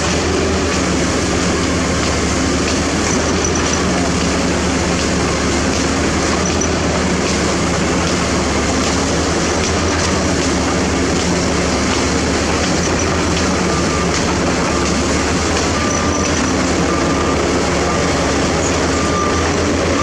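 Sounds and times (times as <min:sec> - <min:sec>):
diesel machinery engine drone: 0:00.0 - 0:20.0
mechanical clatter and hiss: 0:01.8 - 0:16.9.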